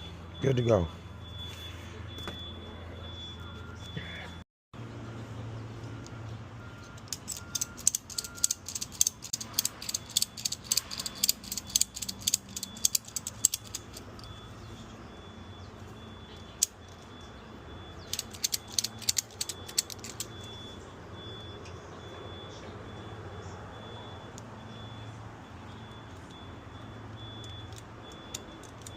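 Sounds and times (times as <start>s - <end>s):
faint high beeping: 0.0s - 28.9s
metallic clicking and rattling: 6.8s - 14.4s, 18.0s - 20.5s, 27.4s - 28.9s.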